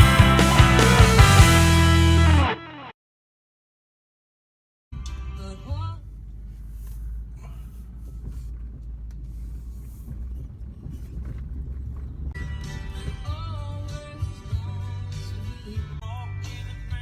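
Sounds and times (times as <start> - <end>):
truck engine and road rumble: 5.0 - 17.0.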